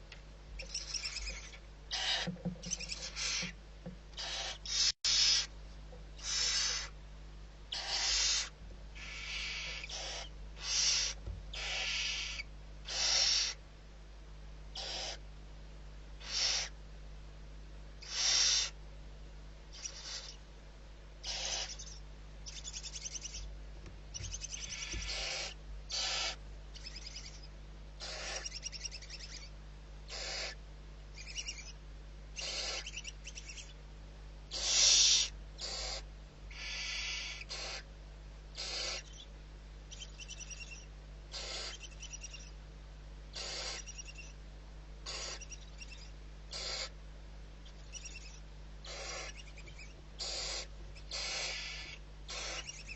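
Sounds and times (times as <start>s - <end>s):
low steady hum: 0.0s - 52.9s
owl hissing screeches: 0.6s - 3.6s, 4.2s - 5.5s, 6.2s - 7.0s, 7.7s - 13.6s, 14.8s - 15.2s, 16.2s - 16.8s, 18.0s - 18.8s, 19.7s - 20.4s, 21.2s - 23.5s, 24.2s - 29.5s, 30.1s - 30.6s, 32.4s - 33.7s, 34.5s - 37.9s, 38.6s - 39.3s, 40.0s - 42.5s, 43.4s - 44.4s, 45.0s - 47.0s, 47.9s - 52.9s.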